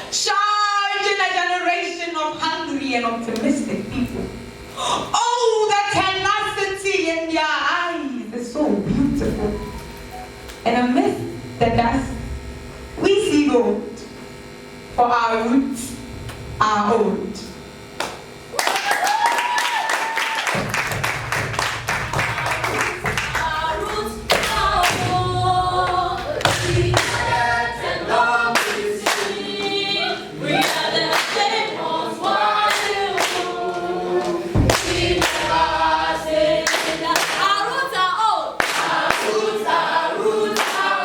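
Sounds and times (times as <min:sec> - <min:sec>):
rhythmic hand clapping: 0:18.0 - 0:38.0, 0:38.6 - 0:41.0
group singing unaccompanied: 0:22.0 - 0:41.0.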